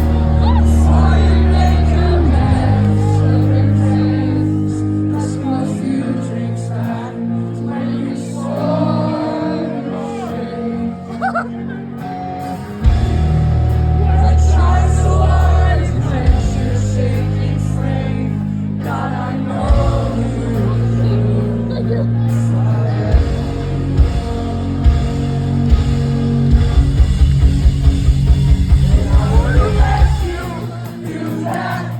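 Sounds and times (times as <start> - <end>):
live rock band playing: 0.0 - 5.7, 11.8 - 31.9
person singing: 0.0 - 11.8, 28.7 - 31.9.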